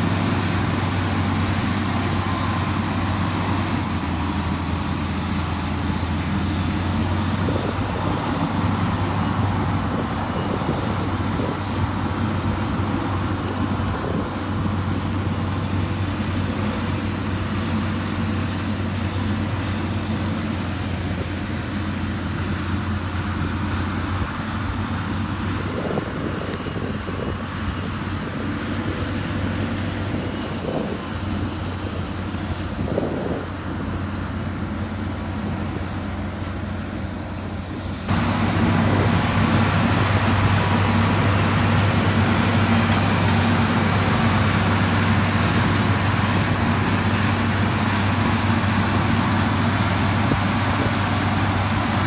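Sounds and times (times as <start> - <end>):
heavy diesel engine under load: 0.0 - 52.0.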